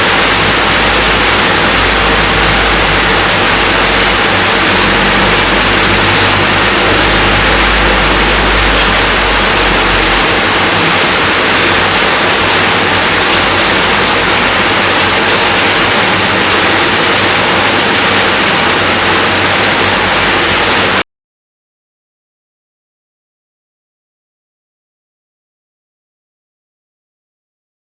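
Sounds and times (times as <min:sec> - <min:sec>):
low rumble: 0:00.0 - 0:12.5
steady rain falling: 0:00.0 - 0:21.0.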